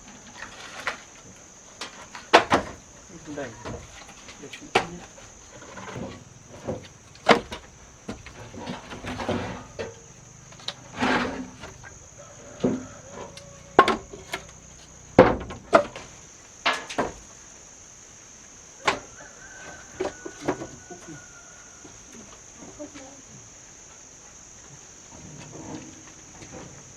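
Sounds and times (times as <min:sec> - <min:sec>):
wooden knocks and clatters: 0:00.1 - 0:17.3.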